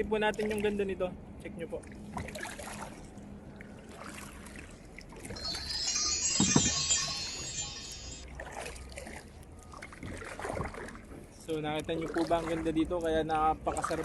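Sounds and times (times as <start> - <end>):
water dripping and lapping: 1.8 - 5.3, 8.6 - 14.0
shrill high-pitched tones: 5.4 - 8.3.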